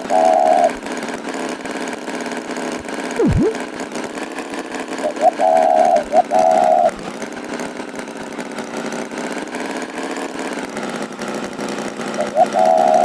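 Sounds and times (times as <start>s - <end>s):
rising pitched tone: 3.2s - 3.6s.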